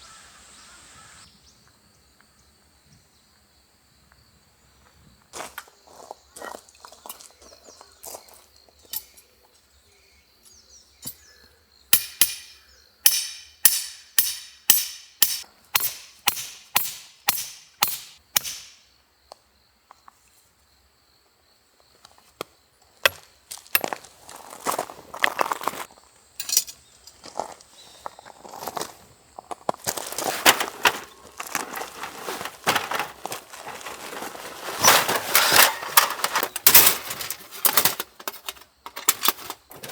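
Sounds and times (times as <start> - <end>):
sharp chopping strokes: 13.1 - 18.9
crackling rustling noise: 29.8 - 37.8.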